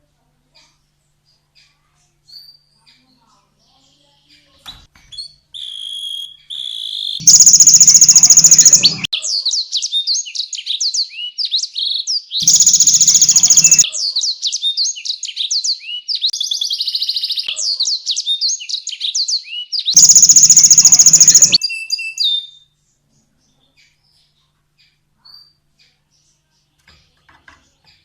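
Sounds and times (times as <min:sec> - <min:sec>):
canary singing: 0:05.6 - 0:09.1, 0:12.4 - 0:14.0, 0:19.4 - 0:22.5.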